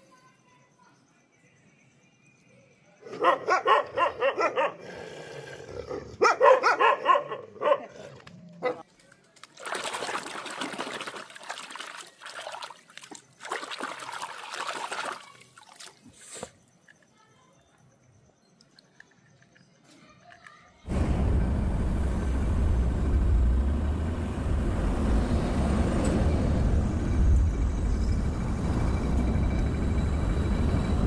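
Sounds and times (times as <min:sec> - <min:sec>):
dog barking: 0:03.0 - 0:04.9, 0:05.9 - 0:08.9
water spraying and splashing: 0:09.4 - 0:16.6.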